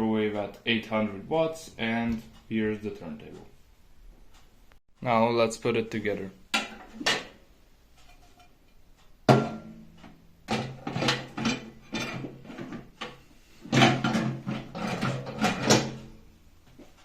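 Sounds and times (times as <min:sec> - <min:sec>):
clunks and scraping: 0:07.9 - 0:09.0, 0:09.8 - 0:17.0.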